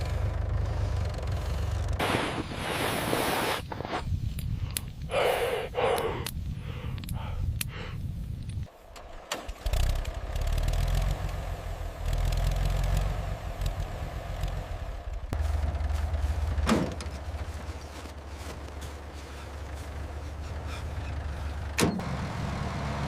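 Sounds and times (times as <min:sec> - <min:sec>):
diesel engine rumbling: 0:00.0 - 0:02.7, 0:08.6 - 0:23.0.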